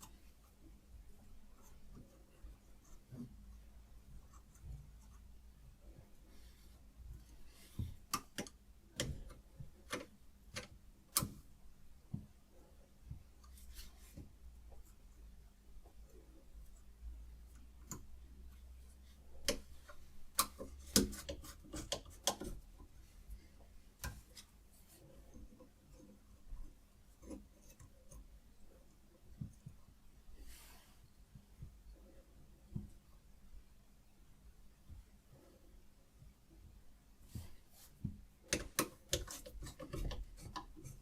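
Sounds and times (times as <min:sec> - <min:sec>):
clicks and taps of hard parts: 0:07.8 - 0:11.4, 0:19.4 - 0:22.9, 0:38.0 - 0:41.0.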